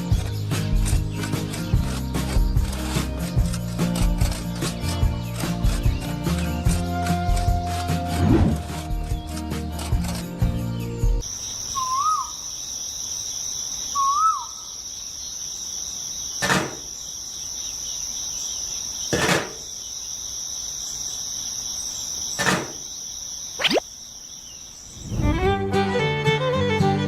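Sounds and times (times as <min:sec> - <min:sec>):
high insect chirring: 0:11.2 - 0:25.2
warbling bird chirps: 0:11.2 - 0:25.4.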